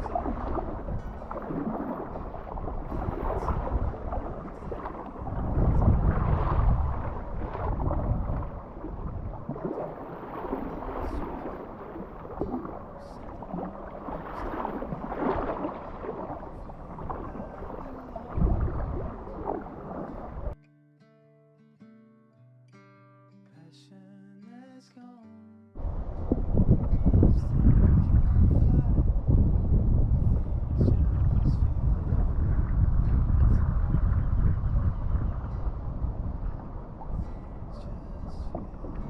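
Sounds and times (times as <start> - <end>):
water splashing around kayak: 0.0 - 20.6, 25.8 - 39.0
wind buffeting microphone: 0.0 - 20.6, 25.8 - 39.0.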